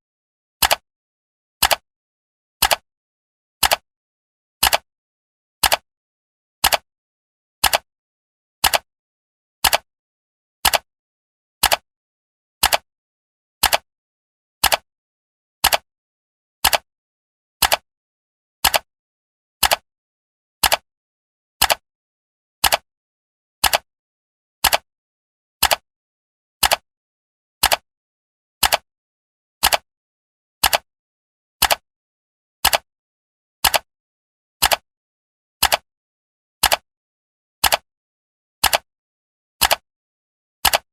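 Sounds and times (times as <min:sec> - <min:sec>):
clock ticking: 0:00.6 - 0:00.8, 0:04.6 - 0:04.8, 0:11.6 - 0:11.8, 0:12.6 - 0:12.8, 0:13.6 - 0:13.8, 0:14.6 - 0:14.8, 0:19.6 - 0:19.8, 0:20.6 - 0:20.8, 0:23.6 - 0:23.8, 0:27.6 - 0:27.8, 0:29.6 - 0:29.8, 0:30.6 - 0:30.8, 0:31.6 - 0:31.8, 0:32.6 - 0:32.9, 0:33.6 - 0:33.9, 0:34.6 - 0:34.8, 0:35.6 - 0:35.8, 0:36.6 - 0:36.8, 0:37.6 - 0:37.8, 0:38.6 - 0:38.8, 0:39.6 - 0:39.8.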